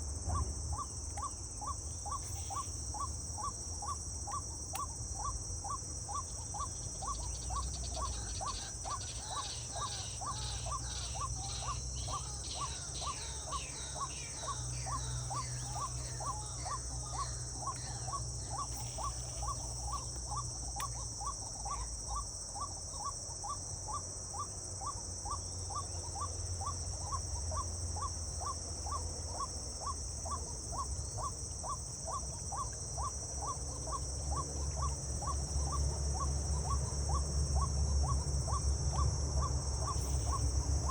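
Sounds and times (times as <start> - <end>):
high-pitched insect drone: 0.2 - 23.7, 29.8 - 40.9
higher repeated bird notes: 8.1 - 19.7.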